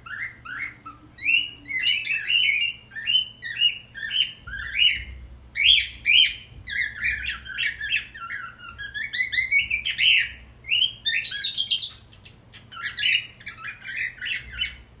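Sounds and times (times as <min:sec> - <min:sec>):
bird singing chirps and whistles: 0:00.0 - 0:14.8.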